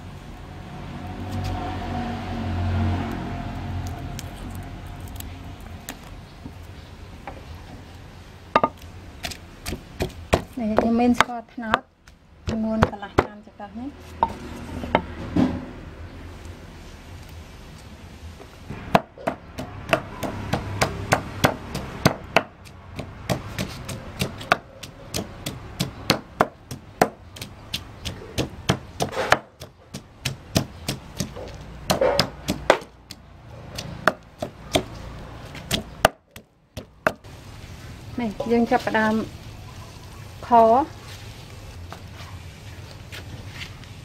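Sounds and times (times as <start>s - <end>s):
knife chopping on cutting board: 19.0s - 32.9s.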